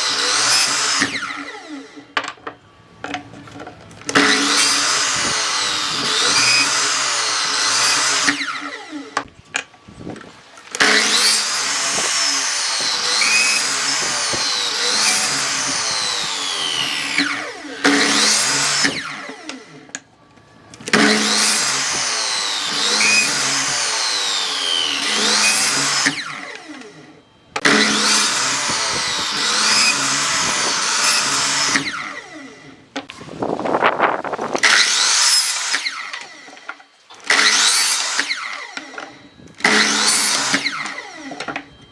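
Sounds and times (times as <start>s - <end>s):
electric power tool cutting wood: 0.0s - 2.3s, 4.0s - 20.0s, 20.7s - 41.8s.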